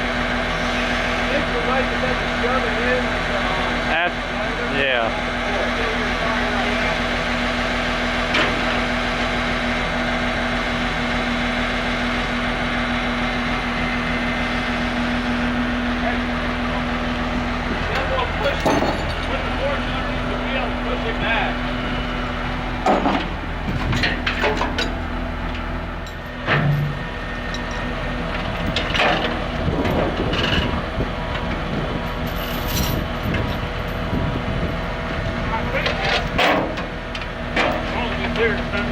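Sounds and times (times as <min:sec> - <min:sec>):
heavy engine running: 0:00.0 - 0:38.9
metallic clanks and knocks: 0:17.8 - 0:19.4, 0:22.8 - 0:31.6, 0:35.8 - 0:38.4.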